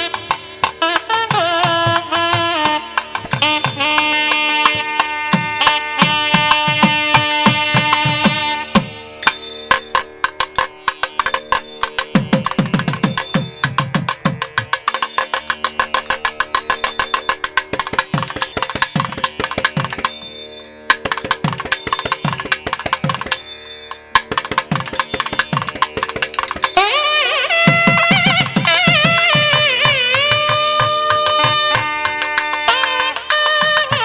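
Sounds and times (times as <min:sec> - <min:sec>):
fast hand-drum strokes: 0:00.0 - 0:20.2, 0:20.9 - 0:23.5, 0:24.1 - 0:34.0.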